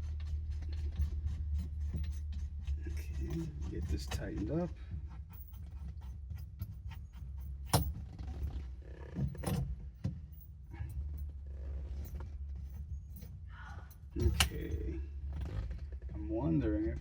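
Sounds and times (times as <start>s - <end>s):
steady low hum: 0.0s - 17.0s
metal hand tools clinking: 13.9s - 14.8s.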